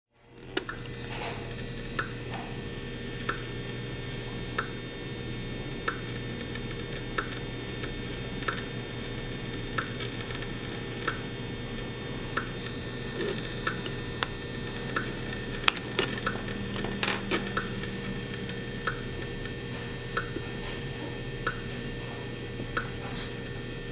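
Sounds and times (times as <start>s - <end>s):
steady hum and hiss: 0.2s - 23.9s
meter speaker clicks: 3.2s - 3.5s, 5.8s - 8.7s.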